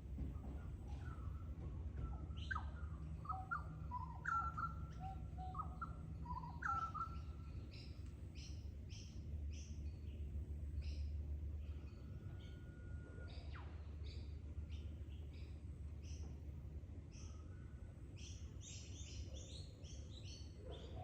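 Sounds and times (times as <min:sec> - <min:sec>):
birds whistling: 0:00.4 - 0:09.7.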